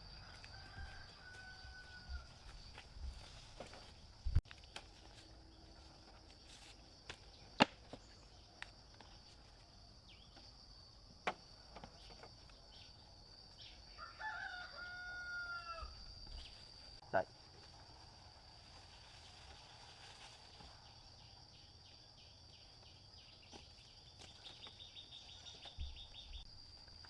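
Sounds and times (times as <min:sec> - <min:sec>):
rooster crowing: 0:00.0 - 0:02.7, 0:13.8 - 0:16.2
high insect drone: 0:00.0 - 0:27.0.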